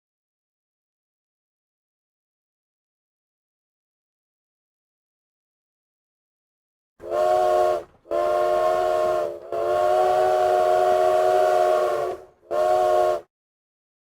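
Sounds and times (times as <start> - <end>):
steam train whistle blasts: 7.0 - 13.3.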